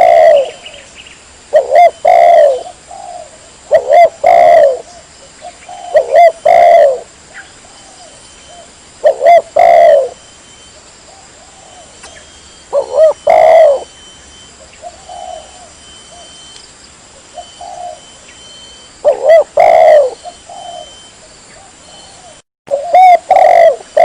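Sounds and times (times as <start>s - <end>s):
dove cooing: 0.0s - 0.9s, 1.5s - 16.6s, 17.2s - 24.0s.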